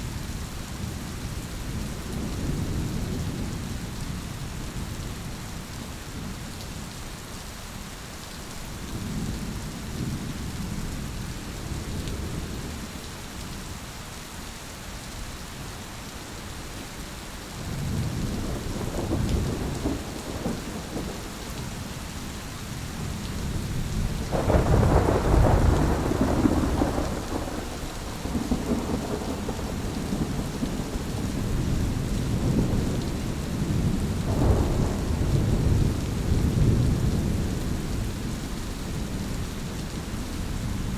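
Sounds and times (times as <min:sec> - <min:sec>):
steady rain: 0:00.0 - 0:40.9
thunder rumbling: 0:17.6 - 0:21.9, 0:23.0 - 0:38.4.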